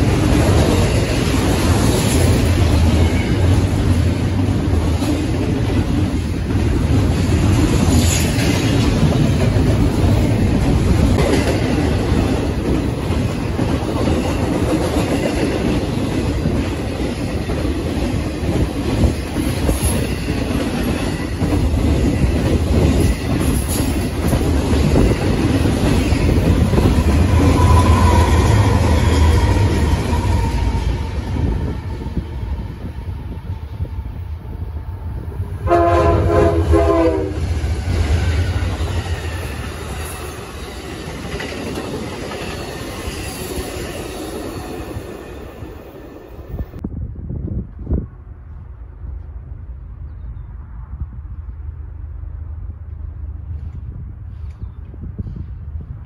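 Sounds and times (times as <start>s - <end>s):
train rumbling past: 0.0s - 56.0s
wheel squeal: 27.1s - 31.0s.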